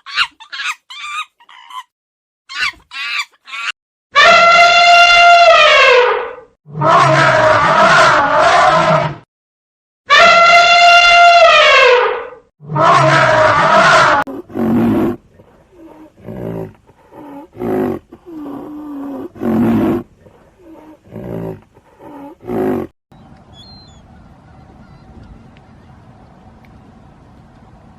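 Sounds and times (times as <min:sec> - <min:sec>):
lion roaring: 0:06.7 - 0:09.2, 0:12.6 - 0:22.9.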